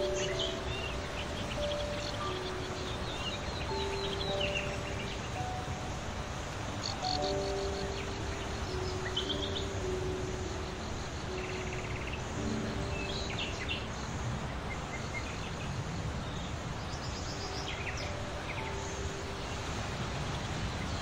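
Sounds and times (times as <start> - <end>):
bird trill: 0.0 - 14.1
small birds chirping: 0.0 - 21.0.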